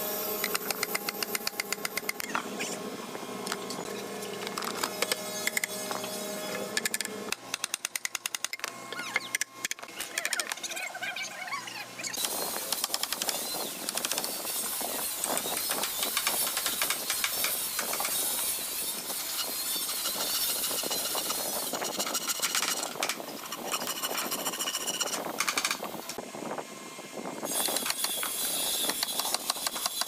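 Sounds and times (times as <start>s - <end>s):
woodworking tool rasping wood: 12.3s - 25.3s.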